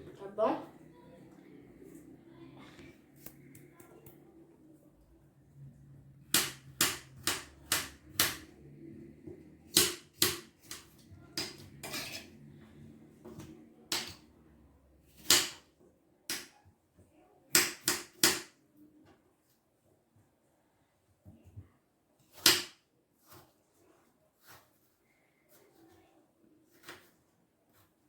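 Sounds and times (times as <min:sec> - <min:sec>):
knife chopping on cutting board: 0:06.3 - 0:08.5, 0:09.7 - 0:12.3, 0:15.2 - 0:15.6, 0:17.6 - 0:18.5, 0:22.3 - 0:22.8.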